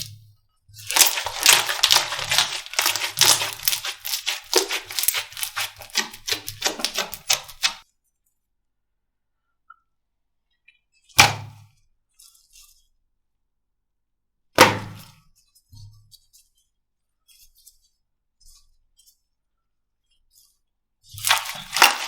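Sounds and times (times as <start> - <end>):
slime crackling and popping: 0.9 - 7.8, 21.2 - 22.0.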